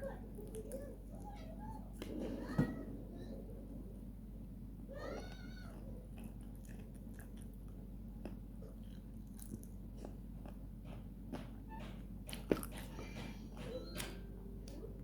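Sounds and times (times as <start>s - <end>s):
person eating clicks and smacks: 5.8s - 14.8s.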